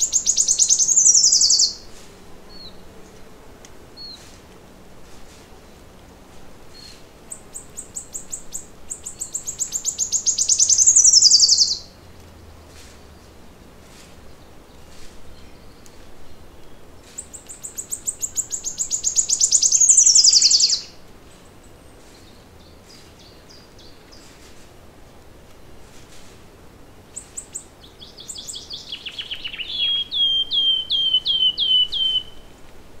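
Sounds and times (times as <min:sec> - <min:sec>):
songbird singing trill: 0:00.0 - 0:01.9, 0:06.7 - 0:12.0, 0:14.3 - 0:24.3, 0:27.1 - 0:32.6
faint bird chips: 0:17.0 - 0:20.9.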